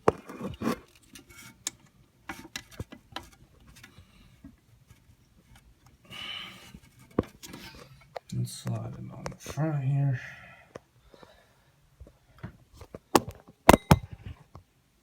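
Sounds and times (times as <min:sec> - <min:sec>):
plastic sliding rasp: 0:00.0 - 0:01.7
plastic parts clicking and tapping: 0:00.0 - 0:05.0.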